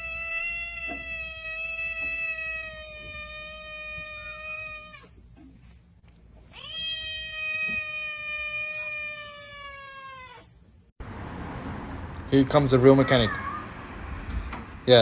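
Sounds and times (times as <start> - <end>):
cat meowing: 0.0 - 5.2, 6.5 - 10.6, 12.8 - 13.8.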